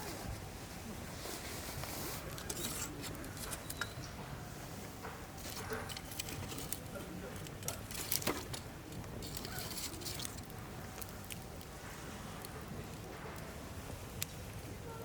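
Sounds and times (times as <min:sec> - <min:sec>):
campfire crackling: 0:00.0 - 0:15.0
sharp pops from burning logs: 0:05.0 - 0:14.6.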